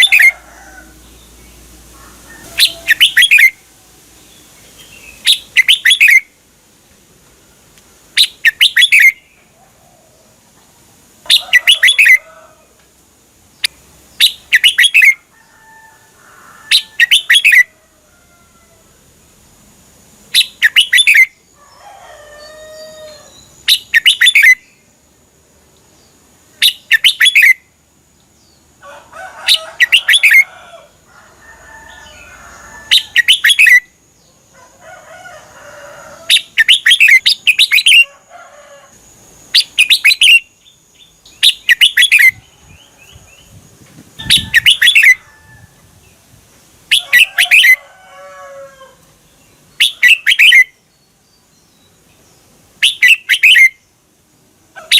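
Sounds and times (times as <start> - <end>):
bulbul singing bright phrases: 0.0 - 0.4, 2.5 - 3.6, 4.2 - 6.4, 8.2 - 9.5, 11.2 - 12.2, 13.4 - 15.2, 16.7 - 17.7, 20.3 - 21.4, 23.3 - 24.9, 26.0 - 27.7, 29.5 - 30.4, 32.9 - 34.0, 36.3 - 38.1, 39.4 - 45.2, 49.3 - 53.9
soft bird warbling: 2.0 - 3.6, 11.3 - 12.4, 44.2 - 45.4.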